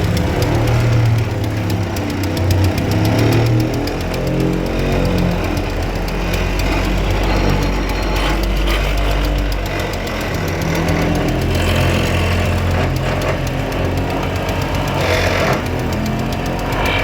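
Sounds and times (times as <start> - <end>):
heavy engine running: 0.0 - 17.0.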